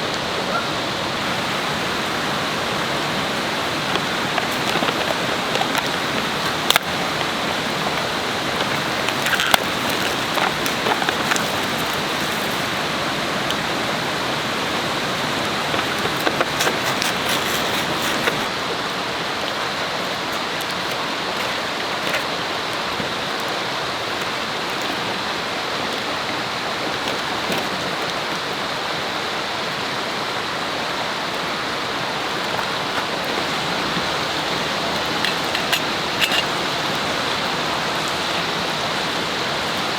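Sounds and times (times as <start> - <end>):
river water rushing: 0.0 - 39.9
sharp clicks and crackles: 3.3 - 12.8, 15.1 - 18.5, 32.4 - 39.9.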